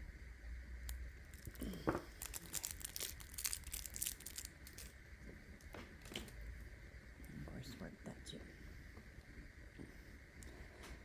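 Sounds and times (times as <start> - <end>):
clay crinkling and crackling: 0.8 - 6.6.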